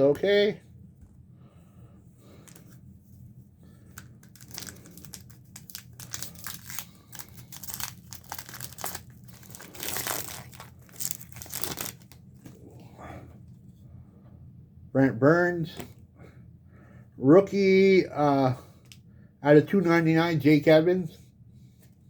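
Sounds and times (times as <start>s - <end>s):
foil wrapper crinkling and tearing: 3.9s - 12.5s.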